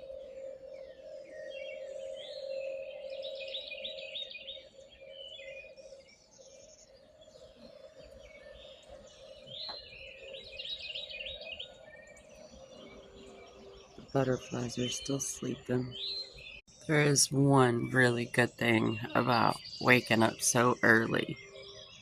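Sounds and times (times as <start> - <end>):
songbirds singing: 0.0 - 22.0
bird repeating rapid phrase: 16.9 - 21.4.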